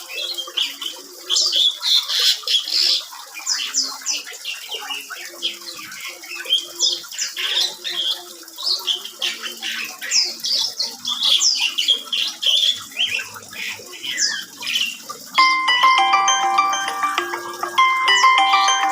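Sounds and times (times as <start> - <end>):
starling singing: 11.5 - 18.9
chiming bell-like music: 15.4 - 18.9.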